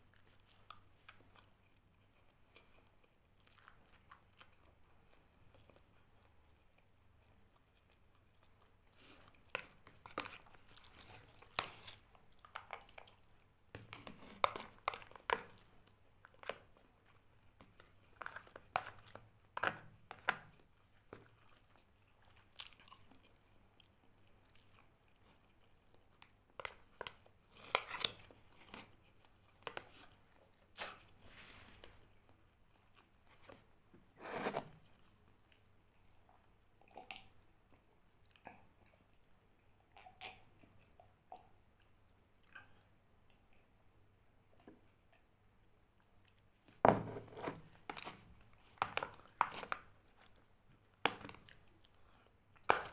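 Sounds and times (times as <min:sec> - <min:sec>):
person chewing crunchy food: 0:00.0 - 0:33.6, 0:46.2 - 0:52.9.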